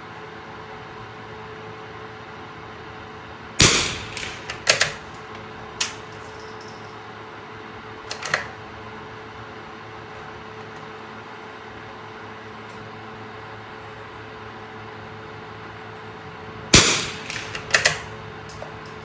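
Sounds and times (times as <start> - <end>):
rifle shot: 3.6 - 6.4, 16.8 - 18.2
rifle bolt metallic clicks: 3.6 - 6.5, 8.1 - 8.5, 16.8 - 19.0.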